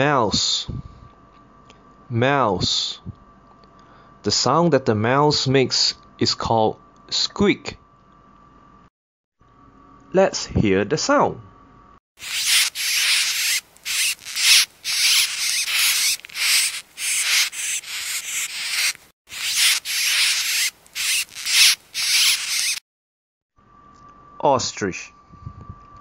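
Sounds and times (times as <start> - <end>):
mouse squeaking: 12.2 - 22.8.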